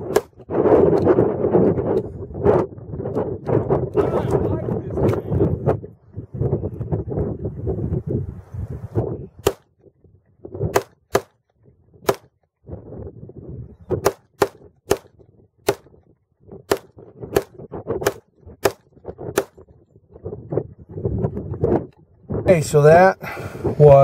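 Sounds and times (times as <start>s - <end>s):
pistol shots: 9.4s - 9.7s, 10.7s - 11.4s, 12.0s - 12.4s, 14.0s - 15.9s, 16.7s - 19.6s.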